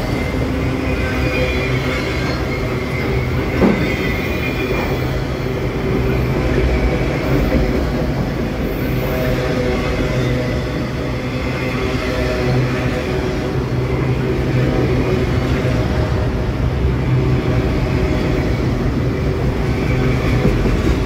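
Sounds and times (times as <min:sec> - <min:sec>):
high wheel squeal: 0:00.0 - 0:07.4
train wheels rumbling on rail: 0:00.0 - 0:21.0.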